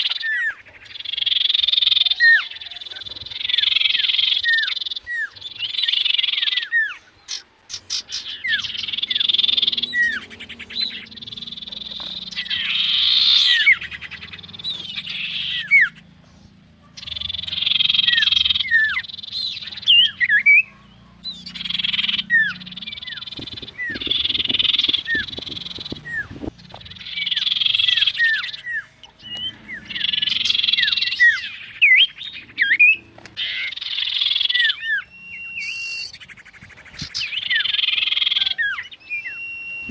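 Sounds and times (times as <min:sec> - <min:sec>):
frogs calling: 0:00.0 - 0:39.9
high falling chirps: 0:07.8 - 0:36.6.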